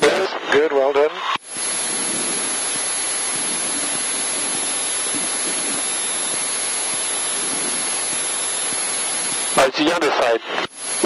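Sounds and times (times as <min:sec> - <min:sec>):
cockpit noise hiss on intercom: 0:09.6 - 0:11.0.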